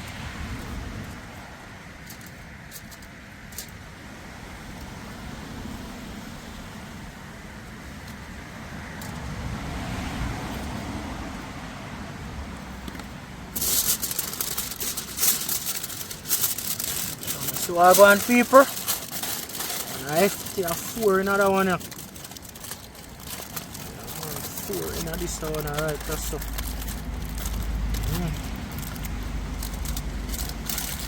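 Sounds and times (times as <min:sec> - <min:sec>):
loud crackling and clicking: 0:13.5 - 0:31.0.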